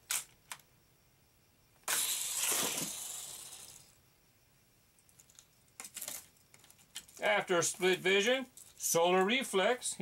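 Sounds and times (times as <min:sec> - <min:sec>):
toy car launcher snap: 0:01.8 - 0:03.8
toy car rolling down plastic track: 0:01.9 - 0:03.9.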